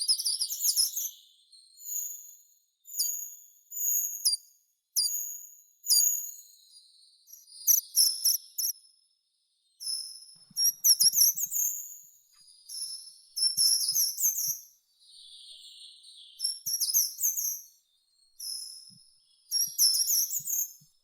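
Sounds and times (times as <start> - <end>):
songbird singing: 12.6 - 17.5.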